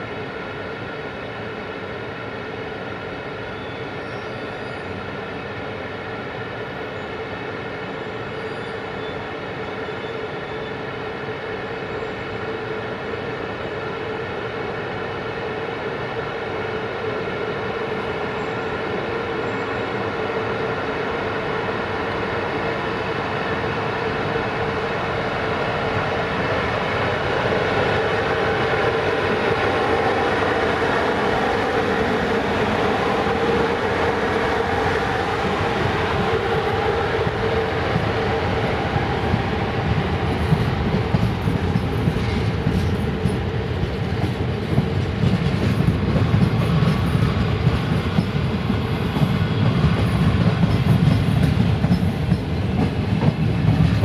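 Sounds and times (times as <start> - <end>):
electric locomotive hum: 0.0 - 54.0.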